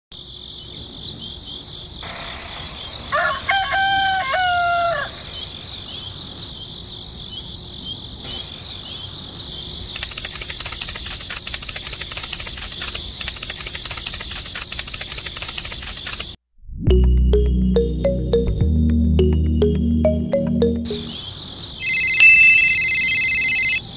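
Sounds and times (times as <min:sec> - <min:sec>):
rooster crowing: 0:03.1 - 0:05.4
high chirping: 0:20.1 - 0:23.9.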